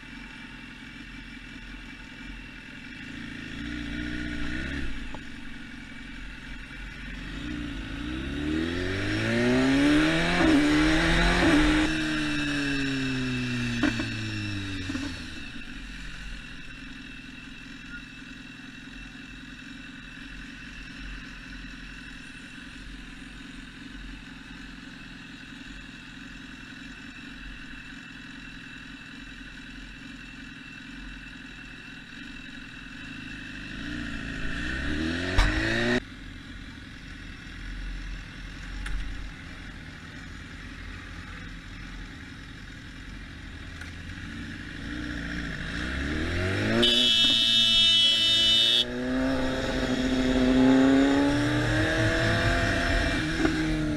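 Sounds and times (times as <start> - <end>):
car engine revving: 7.1 - 16.6, 33.7 - 36.0, 43.8 - 53.9.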